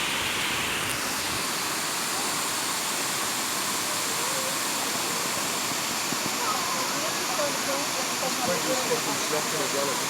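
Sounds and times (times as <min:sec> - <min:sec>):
waterfall pouring: 0:00.0 - 0:10.0.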